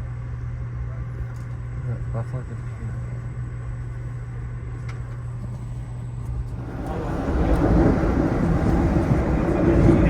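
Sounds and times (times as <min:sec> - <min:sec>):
train rumbling on rails: 0:06.4 - 0:10.0
rushing rail noise: 0:06.5 - 0:10.0.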